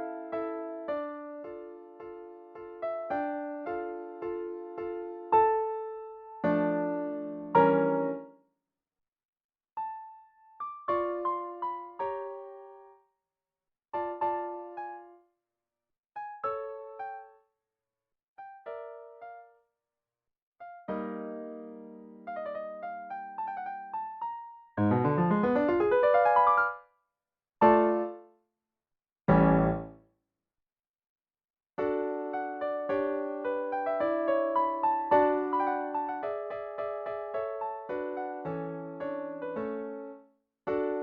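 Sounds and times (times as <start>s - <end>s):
piano music: 0.0s - 8.3s, 20.8s - 26.8s, 27.6s - 28.2s, 29.3s - 30.0s, 31.8s - 40.2s.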